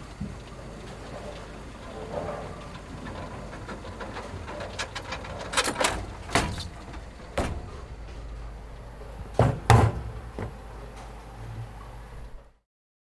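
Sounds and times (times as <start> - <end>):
steady low hum: 0.0 - 12.6
clicks and knocks: 2.9 - 8.4, 9.2 - 11.2.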